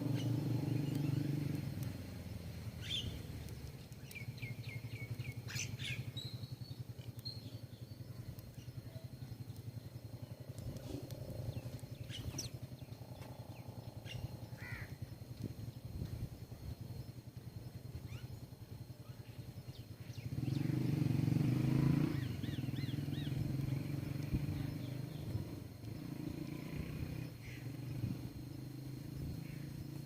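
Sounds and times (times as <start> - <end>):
low humming rumble: 0.0 - 20.7
small birds chirping: 0.0 - 30.0.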